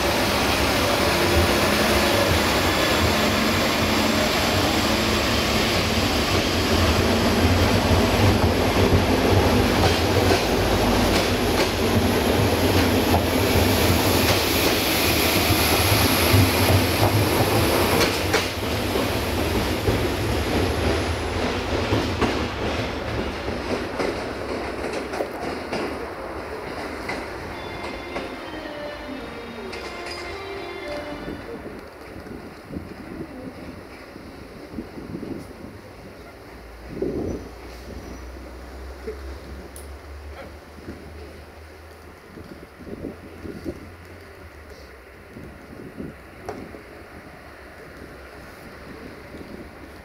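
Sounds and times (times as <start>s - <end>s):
train engine rumble: 0.0s - 50.0s
wheels clicking over rail joints: 15.4s - 28.3s.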